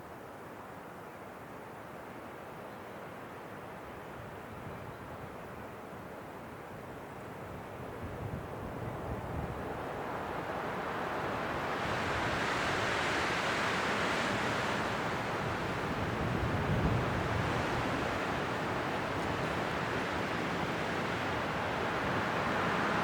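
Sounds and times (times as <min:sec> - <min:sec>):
wind blowing in gusts: 0:06.8 - 0:23.0.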